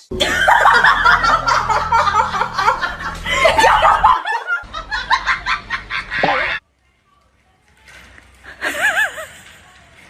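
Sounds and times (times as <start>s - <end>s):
people laughing hard: 0.1s - 6.6s, 8.4s - 9.5s.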